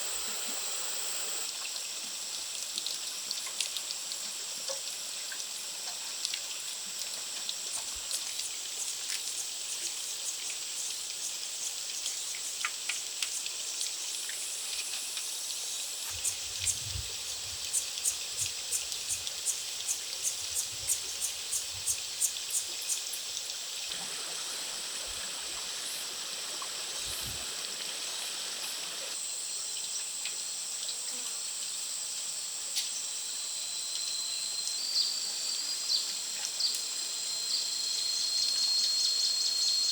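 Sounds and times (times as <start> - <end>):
high-pitched insect buzz: 0.0 - 1.5, 14.2 - 23.3
trickling water: 0.0 - 29.2.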